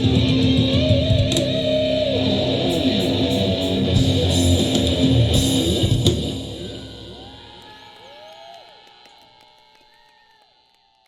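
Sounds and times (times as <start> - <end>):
live rock band playing: 0.0 - 7.6
bass guitar: 0.0 - 7.9
strummed electric guitar: 0.0 - 8.0.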